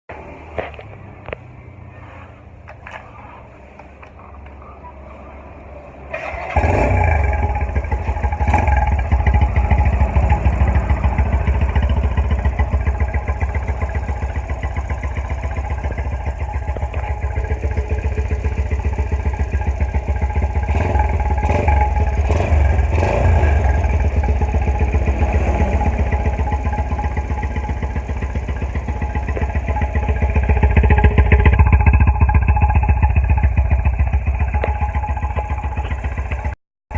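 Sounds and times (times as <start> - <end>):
motorcycle engine running: 6.2 - 36.6.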